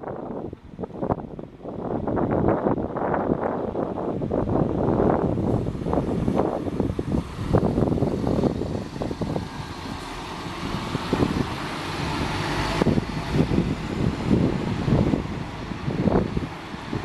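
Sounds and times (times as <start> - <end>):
wind rumbling on microphone: 0.0 - 17.0
vehicle passing by: 5.0 - 17.0.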